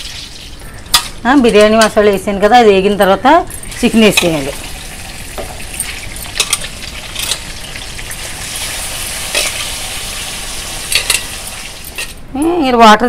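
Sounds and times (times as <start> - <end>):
spices sizzling in oil: 0.0 - 2.3, 2.9 - 12.2.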